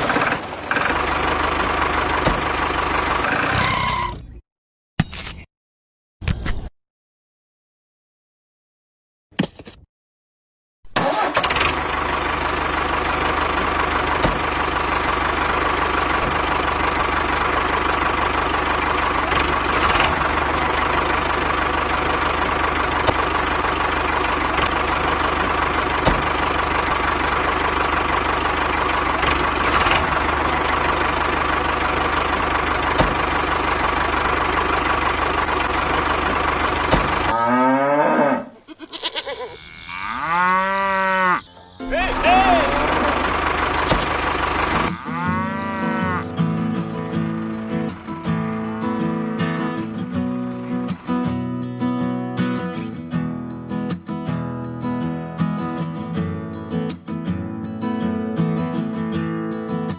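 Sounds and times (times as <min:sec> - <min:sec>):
tractor engine running: 0:00.0 - 0:04.4, 0:10.9 - 0:37.8, 0:38.6 - 0:59.9
cow mooing: 0:37.3 - 0:41.9, 0:44.7 - 0:46.4.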